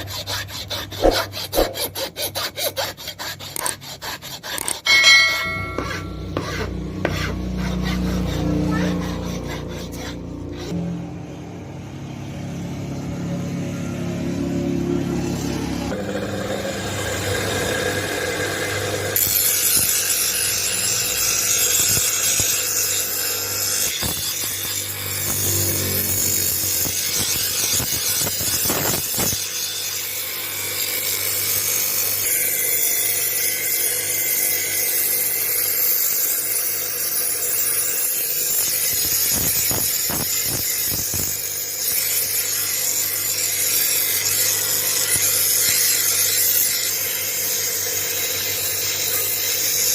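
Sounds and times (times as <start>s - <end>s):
power tool grinding metal: 0.0s - 10.9s, 15.0s - 49.9s.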